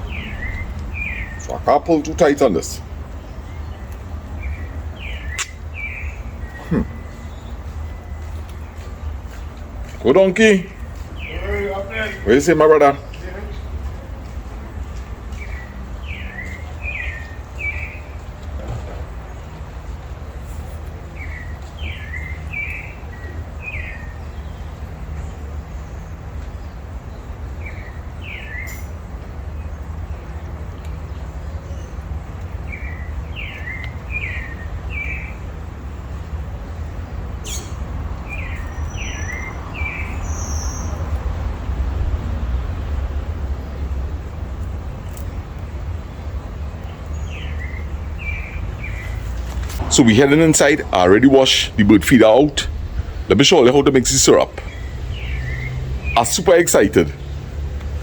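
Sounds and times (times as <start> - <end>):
songbird singing: 0.0 - 58.0
steady low rumble: 40.9 - 55.3.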